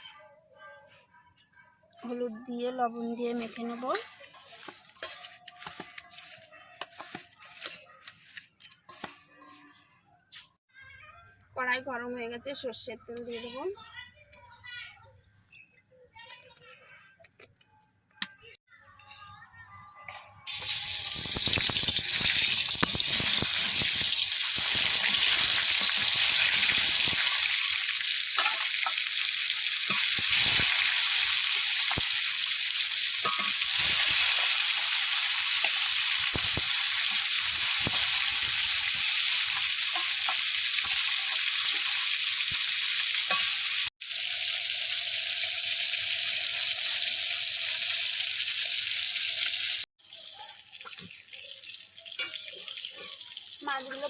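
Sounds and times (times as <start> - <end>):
fish sizzling in hot oil: 2.8 - 9.8, 20.5 - 54.0.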